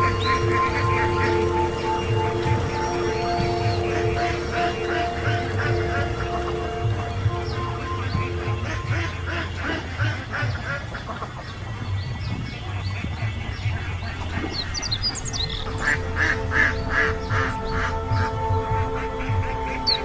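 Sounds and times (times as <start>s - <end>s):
background music with held notes: 0.0s - 20.0s
bird calls: 0.0s - 20.0s.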